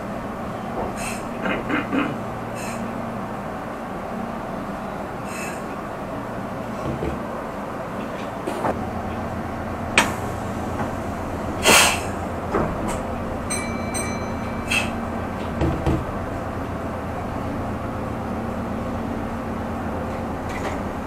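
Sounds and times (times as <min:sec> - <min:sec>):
train rumble on board: 0:00.0 - 0:21.0
brief hiss: 0:11.6 - 0:12.1.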